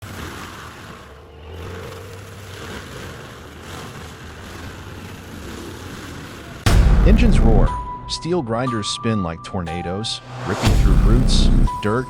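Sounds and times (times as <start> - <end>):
heavy machine engine running: 10.6 - 12.0.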